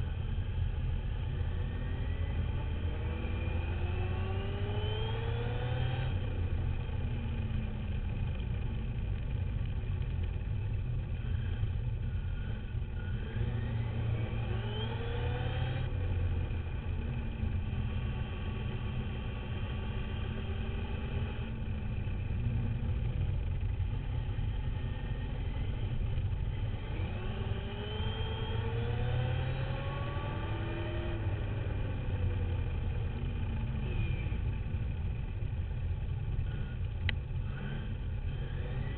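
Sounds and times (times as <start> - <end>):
steady low rumble: 5.5 - 14.4, 15.1 - 27.8, 28.7 - 38.9
rc dirt bike motor whining: 36.4 - 38.9.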